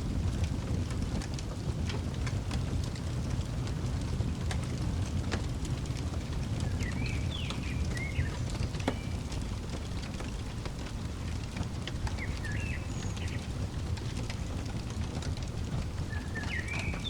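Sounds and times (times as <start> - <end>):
wood fire crackling: 0.0 - 17.0
bird chirping: 6.6 - 9.2, 12.0 - 14.1, 16.0 - 17.0.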